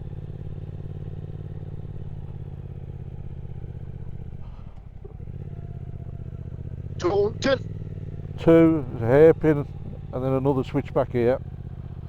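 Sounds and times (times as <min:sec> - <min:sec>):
motorcycle engine pulling: 0:03.8 - 0:12.0.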